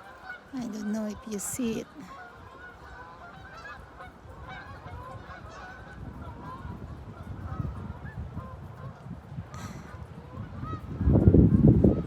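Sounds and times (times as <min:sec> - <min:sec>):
waterfowl honking: 0:00.0 - 0:06.7.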